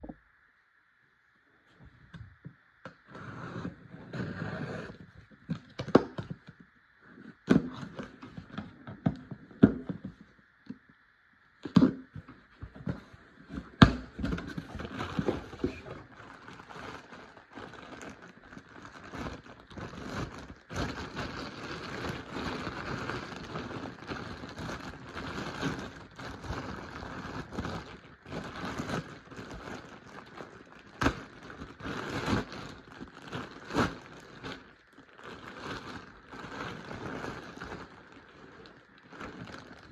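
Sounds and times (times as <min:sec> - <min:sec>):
wrapping and fabric rustling: 0:12.2 - 0:39.9.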